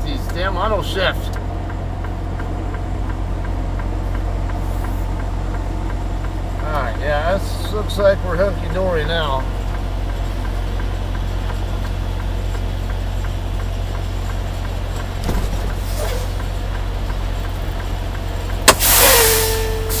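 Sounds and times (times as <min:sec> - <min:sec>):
diesel truck engine idling: 0:00.0 - 0:20.0
air brake hiss: 0:18.7 - 0:20.0.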